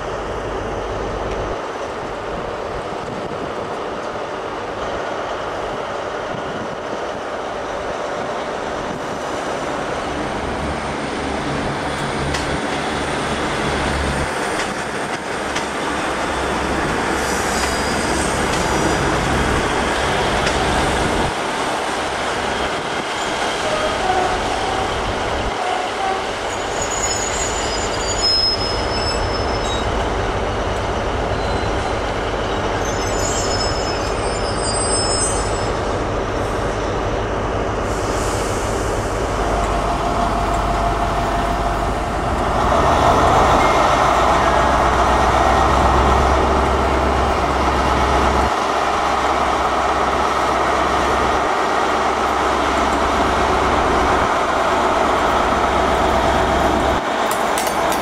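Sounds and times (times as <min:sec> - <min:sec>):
diesel locomotive running loudly: 0:00.0 - 0:58.0
train wheels squealing: 0:17.0 - 0:19.2, 0:25.6 - 0:36.0.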